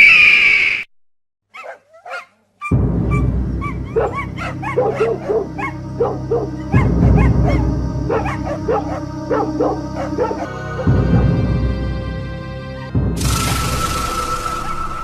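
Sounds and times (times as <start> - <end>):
animal barking and yelping: 1.5 - 11.3
low droning music: 2.7 - 15.0.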